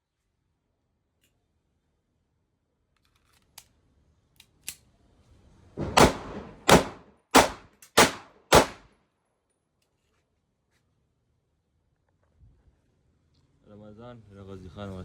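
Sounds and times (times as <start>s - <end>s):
pistol shots: 5.8s - 8.8s.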